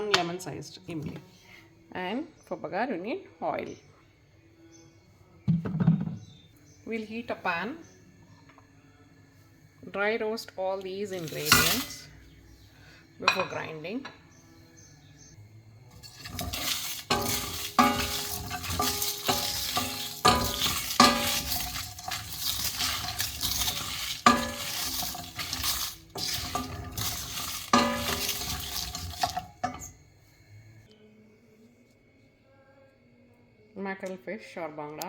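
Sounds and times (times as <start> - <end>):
spices scraping in a pan: 11.0 - 12.3, 15.9 - 30.0
utensil clinking against pan: 11.2 - 12.1, 16.0 - 30.0.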